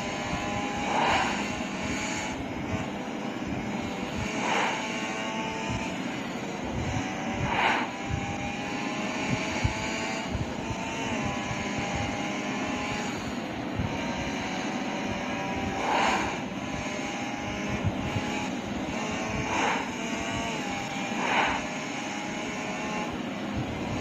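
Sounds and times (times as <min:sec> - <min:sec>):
motorcycle engine running: 0:00.0 - 0:24.0
brief louder rushes: 0:15.8 - 0:16.5.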